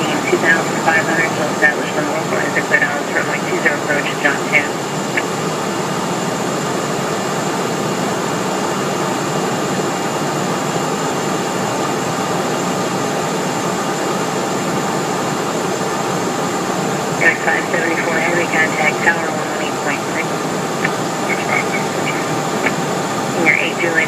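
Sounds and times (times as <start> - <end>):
jet turbofan engines: 0.0 - 24.0
faint high whine: 16.1 - 24.0.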